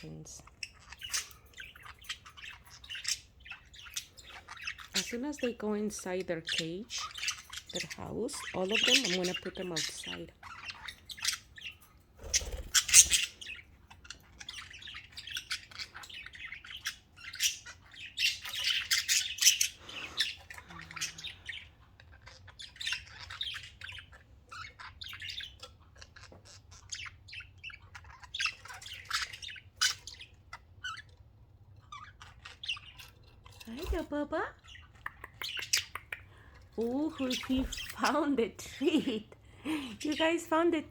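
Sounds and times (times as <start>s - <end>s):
budgerigars chirping and squawking: 0.0s - 40.9s.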